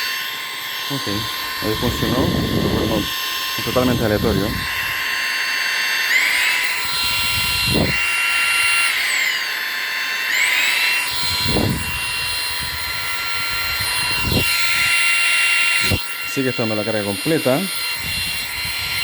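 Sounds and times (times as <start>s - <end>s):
vacuum motor whining: 0.0s - 19.0s.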